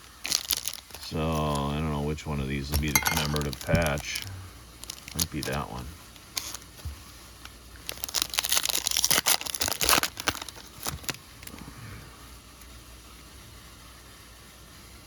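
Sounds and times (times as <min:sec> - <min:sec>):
foil wrapper tearing and crinkling: 0:00.0 - 0:04.2, 0:04.8 - 0:06.8, 0:07.4 - 0:11.6.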